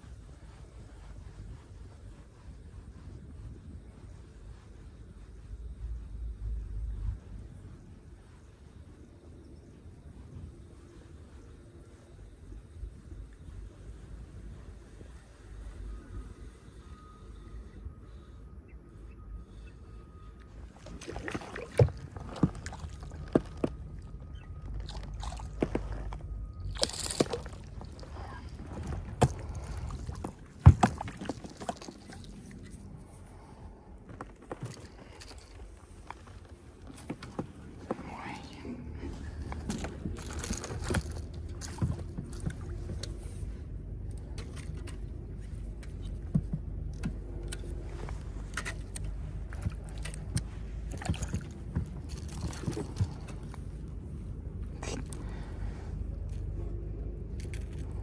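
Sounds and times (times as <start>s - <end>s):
boat engine rumble: 0.0s - 58.0s
water sloshing: 20.7s - 32.8s, 49.4s - 53.6s.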